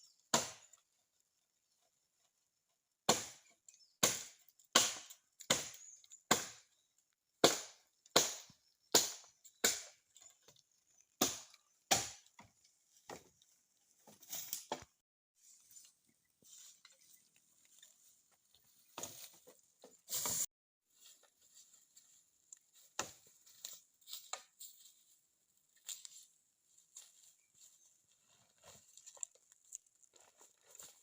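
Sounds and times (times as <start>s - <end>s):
hand tool chopping strikes: 0.3s - 0.7s, 3.1s - 6.6s, 7.4s - 10.0s, 11.2s - 12.4s.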